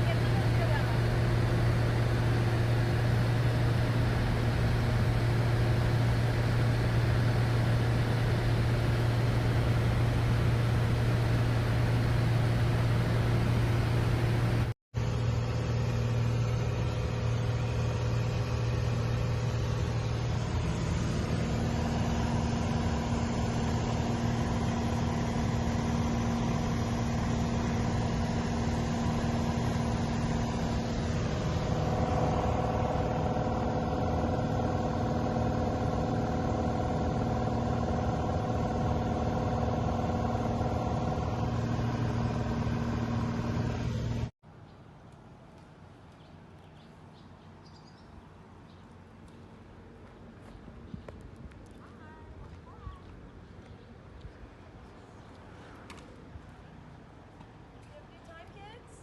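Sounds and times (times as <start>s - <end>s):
helicopter drone: 0.0s - 44.3s.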